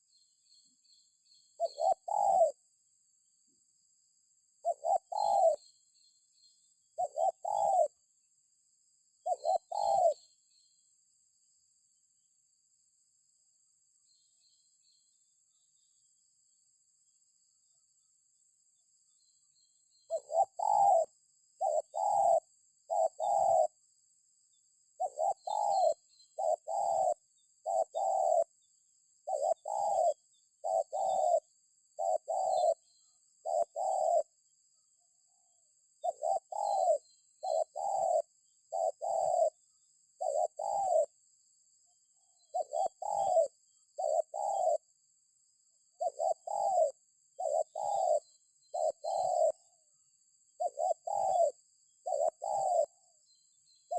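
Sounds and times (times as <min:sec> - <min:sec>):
dove cooing: 0:01.6 - 0:02.7, 0:04.5 - 0:05.7, 0:06.9 - 0:08.1, 0:09.2 - 0:10.4, 0:20.1 - 0:23.9, 0:25.0 - 0:28.6, 0:29.2 - 0:34.4, 0:35.4 - 0:41.2, 0:42.4 - 0:45.0, 0:45.9 - 0:49.8, 0:50.6 - 0:53.2.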